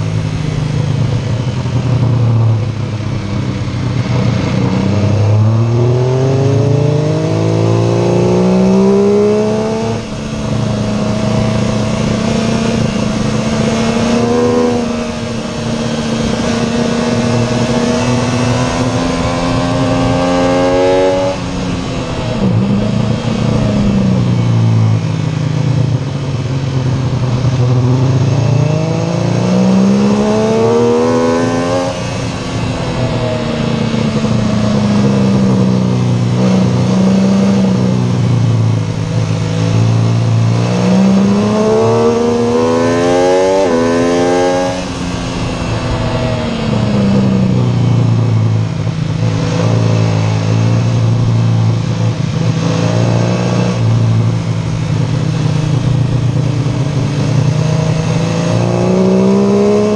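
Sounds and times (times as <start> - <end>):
motorcycle engine accelerating: 0.0 - 59.9
wind rush: 29.8 - 59.9.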